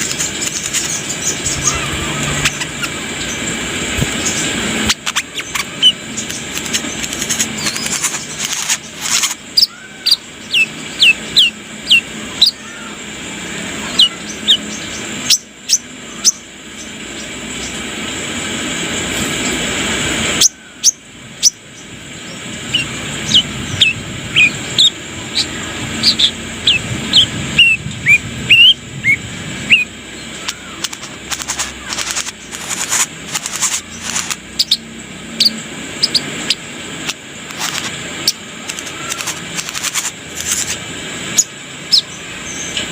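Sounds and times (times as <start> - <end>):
sharp clicks: 0.0 - 1.4, 4.9 - 9.4, 30.4 - 34.7, 37.0 - 40.8
bird chirping: 4.2 - 12.8, 13.9 - 17.8, 20.4 - 42.8
steady hiss: 35.7 - 42.9.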